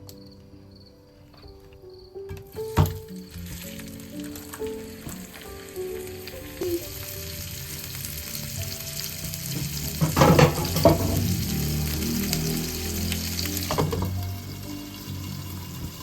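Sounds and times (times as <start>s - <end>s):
soft background music: 0.0s - 16.0s
food sizzling in a frying pan: 3.2s - 16.0s
stirring in a pan: 3.4s - 16.0s.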